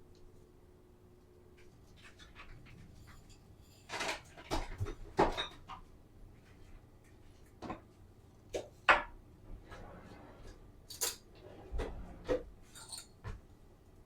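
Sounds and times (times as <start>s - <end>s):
kitchen items knocking and clanking: 2.0s - 5.9s.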